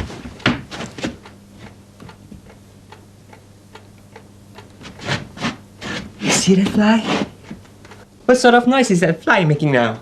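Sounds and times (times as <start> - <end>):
low steady hum: 0.0 - 10.0
clock ticking: 2.1 - 4.8.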